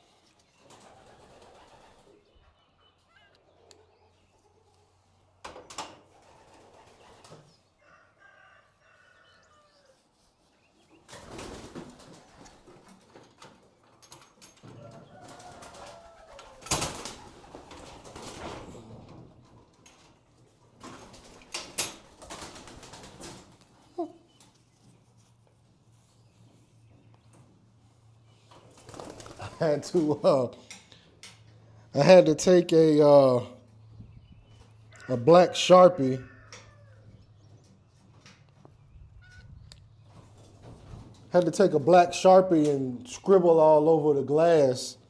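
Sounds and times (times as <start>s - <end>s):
pigeons flapping wings: 0.6s - 2.2s, 5.7s - 7.5s, 11.1s - 13.5s, 15.2s - 18.9s, 20.8s - 23.8s, 28.6s - 30.2s
pigeons cooing: 0.7s - 4.3s, 14.8s - 19.5s, 28.6s - 30.3s.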